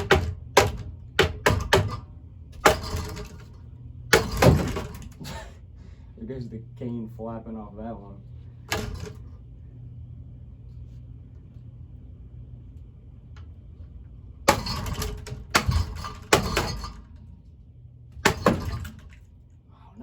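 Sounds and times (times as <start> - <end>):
sharp cracking hits on fan blades: 0.0 - 5.4
ceiling fan motor humming: 0.0 - 20.0.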